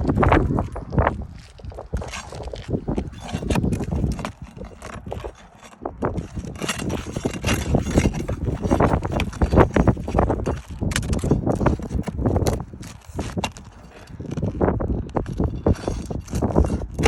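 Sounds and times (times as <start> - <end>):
tools prying up roof shingles: 0.1 - 17.0.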